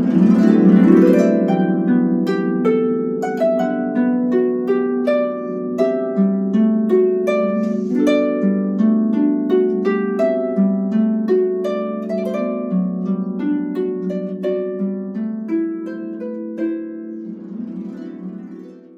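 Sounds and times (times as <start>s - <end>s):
solo harp melody: 0.0s - 18.9s.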